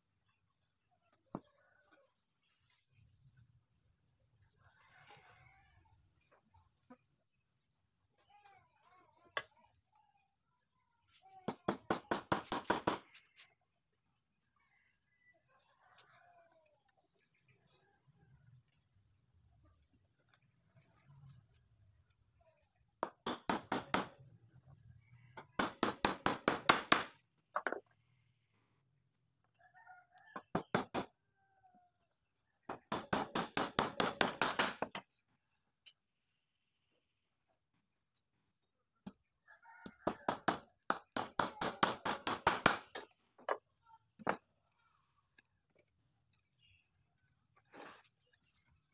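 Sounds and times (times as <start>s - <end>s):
hammer driving nails into wood: 11.5s - 13.1s, 23.0s - 24.1s, 25.6s - 27.8s, 32.8s - 35.0s, 40.3s - 43.1s
distant rooster crowing: 29.6s - 31.9s, 39.4s - 43.2s.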